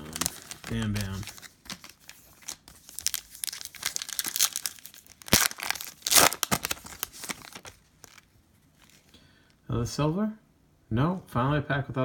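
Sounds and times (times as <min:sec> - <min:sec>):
plastic wrapper tearing and crinkling: 0:00.0 - 0:09.0.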